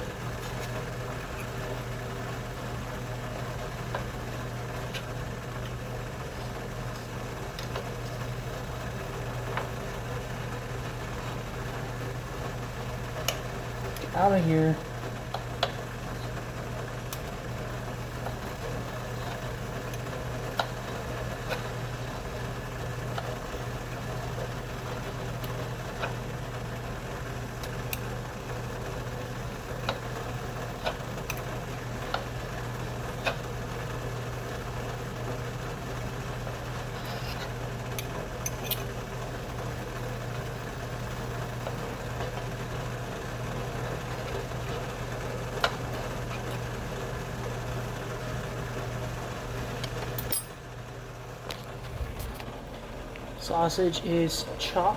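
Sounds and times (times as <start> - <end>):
kitchen appliance humming: 0.0 - 54.9.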